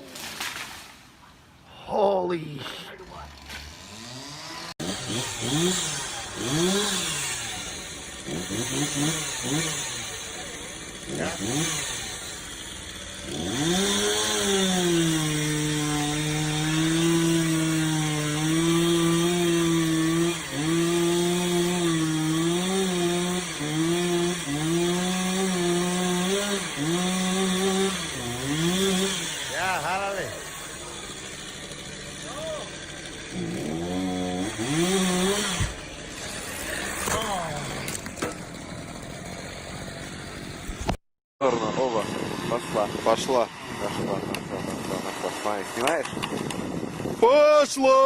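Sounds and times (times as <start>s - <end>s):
chainsaw engine revving: 2.8s - 47.2s.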